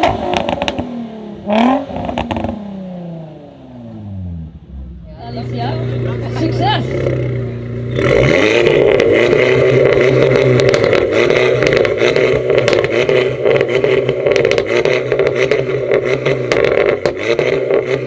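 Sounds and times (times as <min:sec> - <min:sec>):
exhaust pops crackling: 0:00.0 - 0:00.9, 0:01.9 - 0:02.6, 0:05.8 - 0:18.0
car engine revving: 0:00.0 - 0:18.0.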